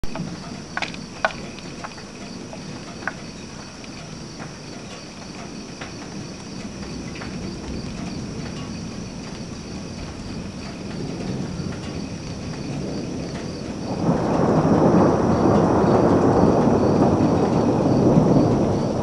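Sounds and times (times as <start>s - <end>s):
crickets trilling: 0.0s - 19.0s
sharp ticks: 0.1s - 14.5s.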